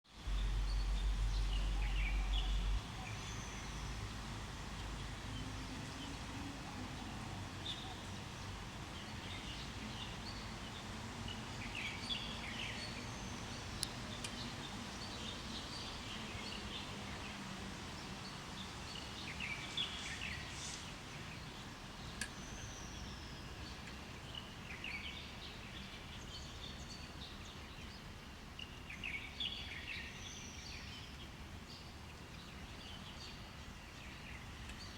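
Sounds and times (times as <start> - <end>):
low background rumble: 0.2 - 7.4.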